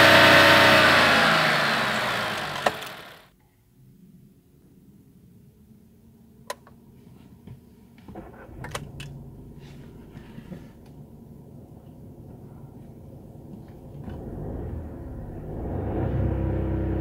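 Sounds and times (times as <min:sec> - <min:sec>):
car engine starting and idling: 0:00.0 - 0:03.3, 0:08.1 - 0:17.0.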